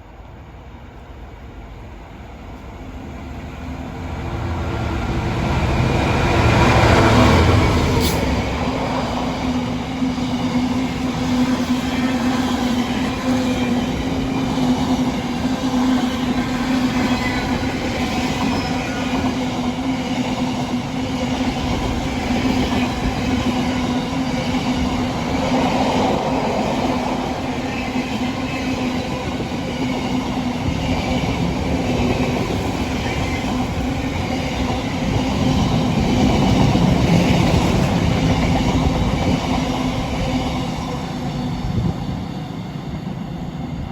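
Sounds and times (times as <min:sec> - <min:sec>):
train wheels rumbling on rail: 0:00.0 - 0:43.9.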